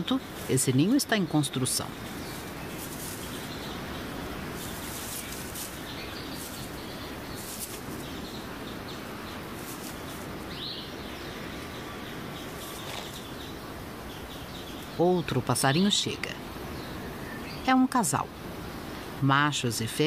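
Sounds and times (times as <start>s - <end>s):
forest ambience: 0.0s - 20.0s
sweeping bird call: 1.8s - 15.0s.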